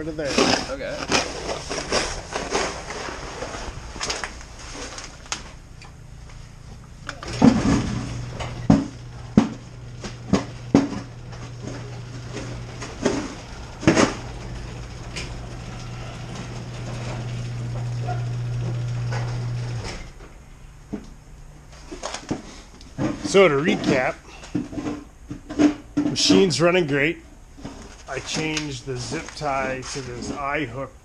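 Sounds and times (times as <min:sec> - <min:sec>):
steady low hum: 0:00.0 - 0:31.0
sharp knocks and clatters: 0:07.0 - 0:18.2, 0:21.9 - 0:26.4.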